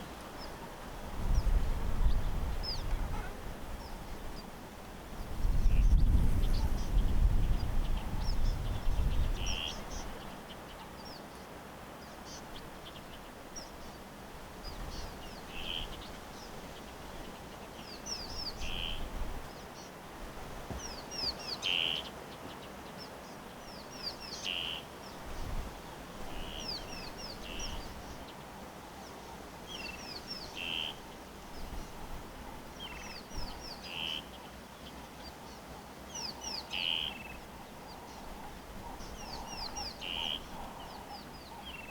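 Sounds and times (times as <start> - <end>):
birds chirping: 32.7 - 41.9.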